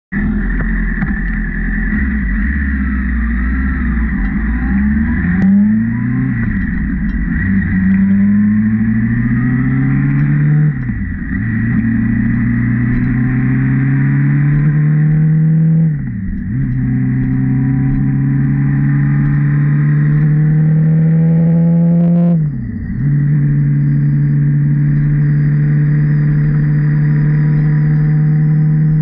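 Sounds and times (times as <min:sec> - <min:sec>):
motorcycle engine revving: 0:00.2 - 0:29.0.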